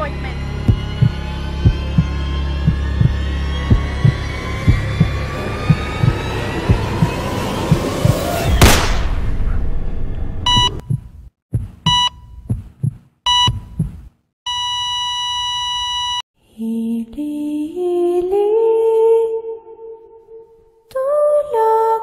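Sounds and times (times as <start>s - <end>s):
soft rising music notes: 0.0s - 8.6s
low heartbeat thumps: 0.5s - 8.8s, 10.5s - 14.2s
heart monitor beeps: 10.5s - 16.2s.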